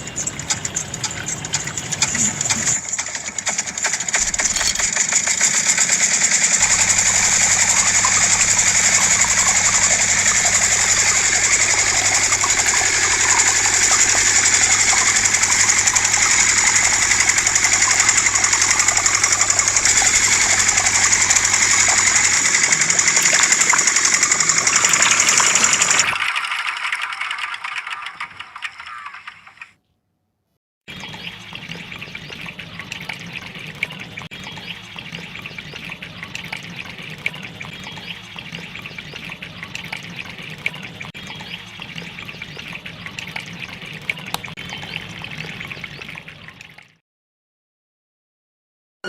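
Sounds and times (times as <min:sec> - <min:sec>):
small electric motor rattling: 0:00.0 - 0:29.7.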